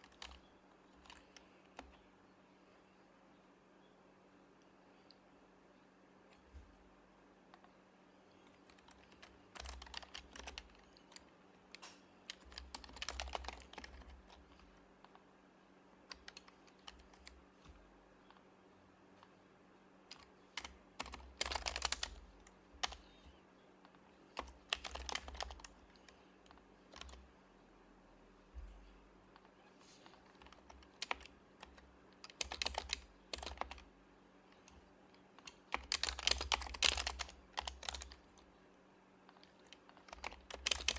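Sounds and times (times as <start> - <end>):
keyboard typing: 0.0 - 2.0, 8.3 - 15.1, 16.1 - 18.4, 20.1 - 27.3, 30.1 - 33.9, 34.5 - 38.5, 39.3 - 40.9.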